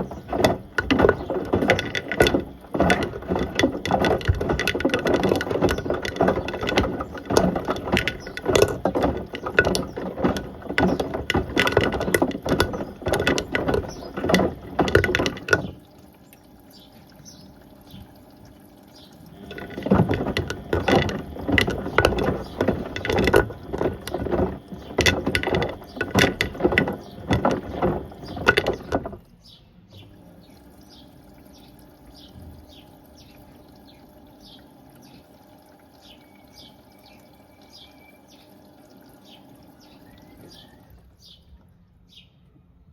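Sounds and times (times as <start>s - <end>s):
objects clattering in washing machine drum: 0.0s - 16.1s, 19.2s - 29.4s, 39.2s - 41.0s
faint dripping water: 0.0s - 26.2s, 30.0s - 42.1s.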